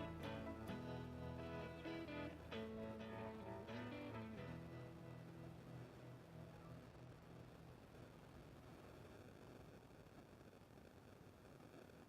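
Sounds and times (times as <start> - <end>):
plucked guitar music: 0.0 - 6.8.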